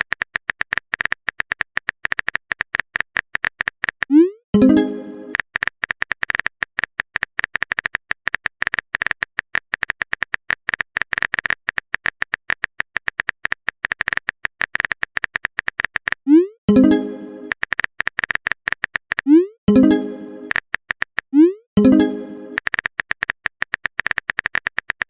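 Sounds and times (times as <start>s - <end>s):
phone keyboard typing clicks: 0.0s - 25.0s
pitched chime: 4.6s - 5.3s, 19.7s - 20.5s.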